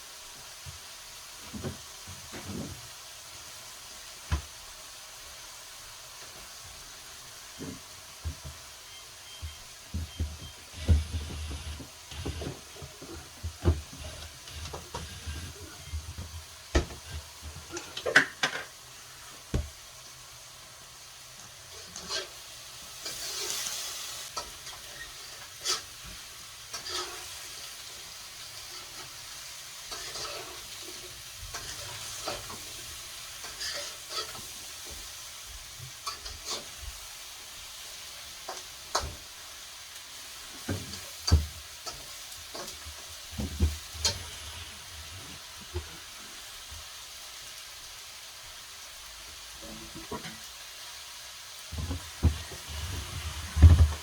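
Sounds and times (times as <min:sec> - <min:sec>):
rustling scrape: 0:51.8 - 0:54.0.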